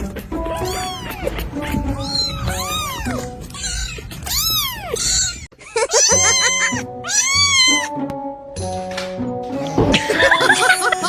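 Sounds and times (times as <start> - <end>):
background music: 0.0 - 3.6, 6.1 - 11.0
kittens meowing: 0.0 - 8.0, 9.5 - 10.2.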